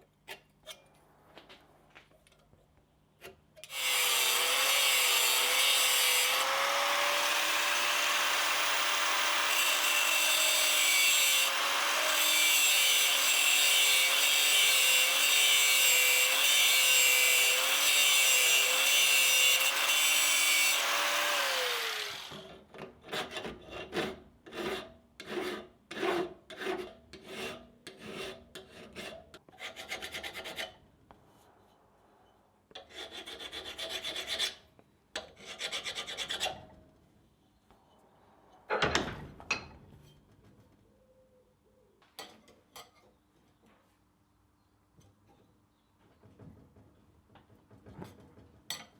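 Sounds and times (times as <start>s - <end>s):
hand file rasping over steel: 3.2s - 22.4s, 23.1s - 30.8s, 32.8s - 36.6s
electric grinder on steel: 3.6s - 22.6s.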